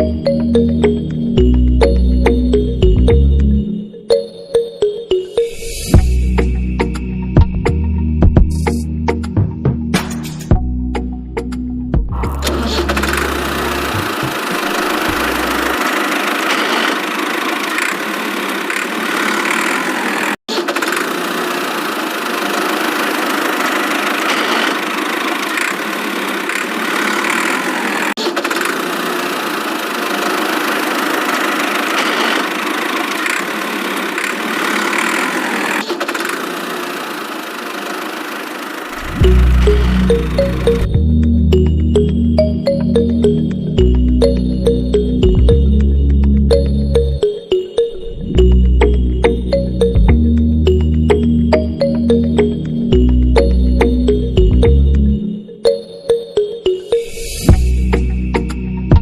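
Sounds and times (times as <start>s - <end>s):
small motor running: 12.3s - 40.9s.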